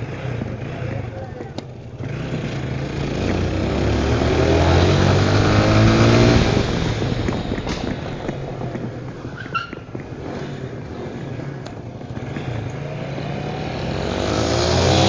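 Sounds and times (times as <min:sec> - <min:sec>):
motorcycle engine accelerating: 0:00.0 - 0:15.0
wind rush: 0:04.2 - 0:09.4.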